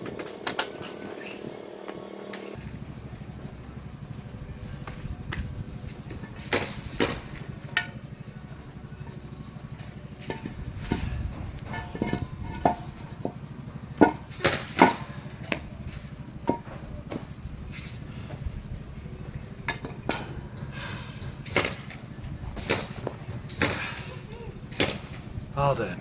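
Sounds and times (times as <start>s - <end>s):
construction knocks and clanks: 0.0s - 26.0s
steady low rumble: 2.5s - 26.0s.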